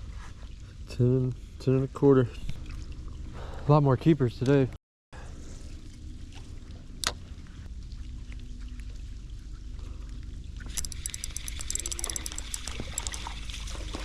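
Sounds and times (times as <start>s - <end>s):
crackling splashing water: 10.6s - 14.0s.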